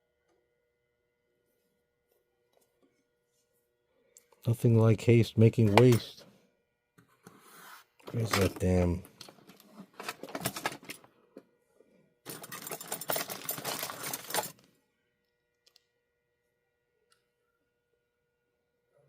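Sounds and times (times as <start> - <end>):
metal parts and tools rattling: 8.1 - 11.1, 12.2 - 14.7.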